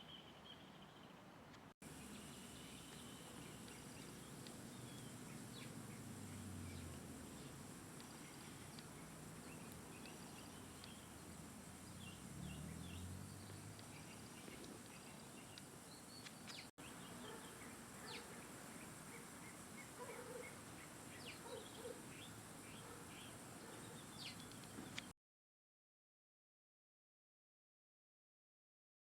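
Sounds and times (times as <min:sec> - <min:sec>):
steady background hiss: 0:00.1 - 0:25.1
small birds chirping: 0:01.9 - 0:25.1.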